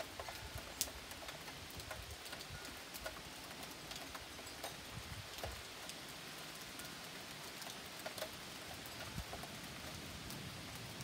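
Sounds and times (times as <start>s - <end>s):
rain falling: 0.0s - 11.0s
raindrops tapping and dripping: 0.0s - 11.0s.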